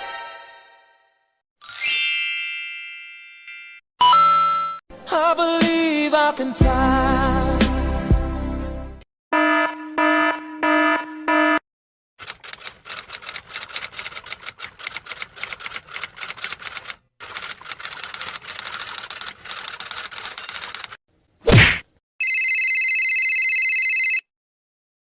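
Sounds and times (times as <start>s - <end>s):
rapid typing on keyboard: 12.2s - 21.0s.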